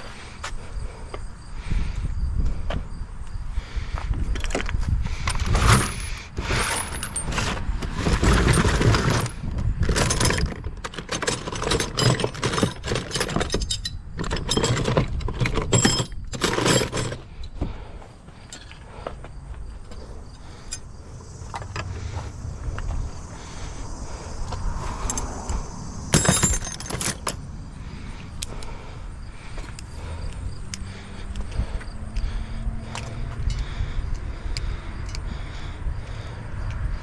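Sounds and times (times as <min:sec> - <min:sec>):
metallic clanks and rattles: 0:04.4 - 0:17.8, 0:18.4 - 0:22.2, 0:25.0 - 0:27.5.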